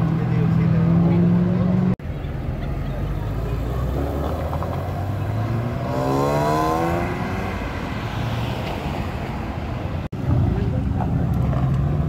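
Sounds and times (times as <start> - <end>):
car engine accelerating: 0.0 - 8.9
low rumble of car engines: 0.0 - 12.0.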